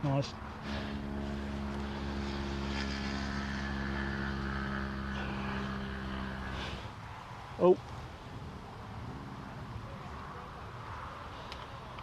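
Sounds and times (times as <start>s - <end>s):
drone propeller motor droning: 0.3s - 7.2s.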